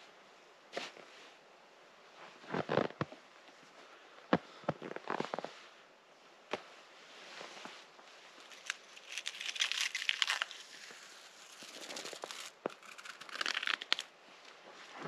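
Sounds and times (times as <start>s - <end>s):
dry crunching and crackling: 8.4s - 14.1s.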